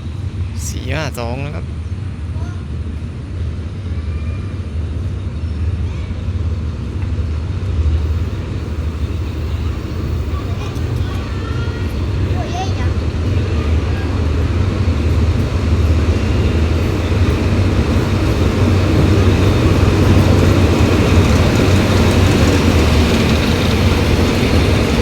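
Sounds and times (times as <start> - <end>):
passenger train rumbling: 0.0 - 25.0.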